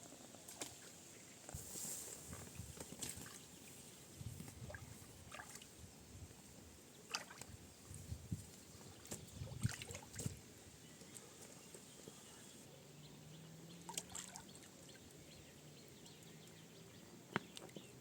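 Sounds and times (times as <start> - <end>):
water splashing and sloshing: 1.5 - 5.9, 7.1 - 11.6, 13.8 - 15.0.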